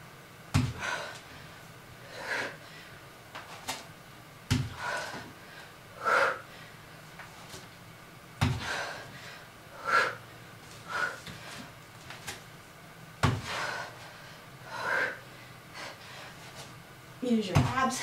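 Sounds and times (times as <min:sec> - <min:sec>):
heavy thuds on floor: 0:00.5 - 0:00.9, 0:04.5 - 0:05.0, 0:08.4 - 0:08.8, 0:13.2 - 0:13.6, 0:17.5 - 0:17.9
person breathing hard: 0:00.7 - 0:03.0, 0:04.6 - 0:07.0, 0:08.4 - 0:11.7, 0:13.3 - 0:16.5.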